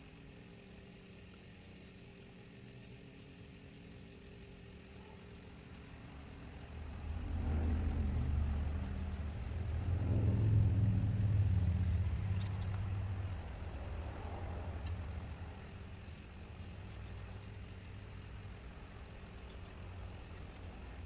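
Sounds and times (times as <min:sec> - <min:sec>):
low motor hum: 0:05.0 - 0:21.0.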